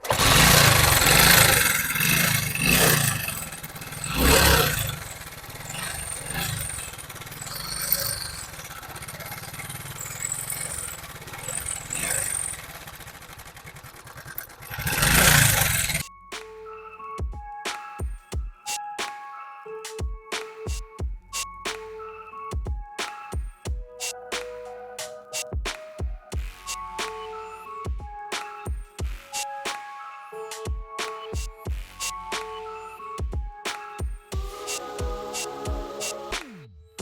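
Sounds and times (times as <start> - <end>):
motorcycle engine idling and revving: 0.0 - 16.0.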